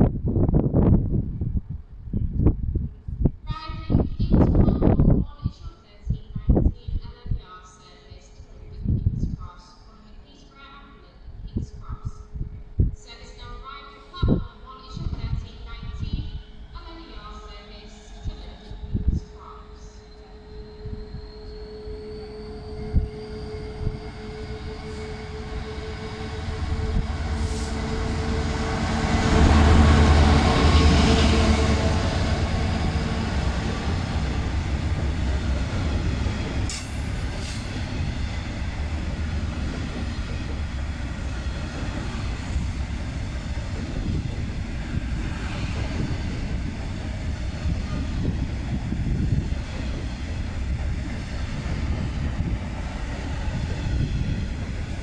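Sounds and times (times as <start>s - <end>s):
diesel locomotive passing: 12.1s - 55.0s
train wheels rumbling on rail: 14.2s - 55.0s.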